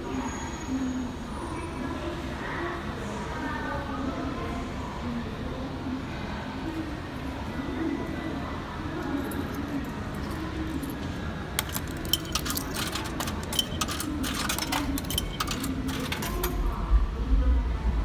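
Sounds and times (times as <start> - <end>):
coins clinking in vending machine: 8.9 - 16.8.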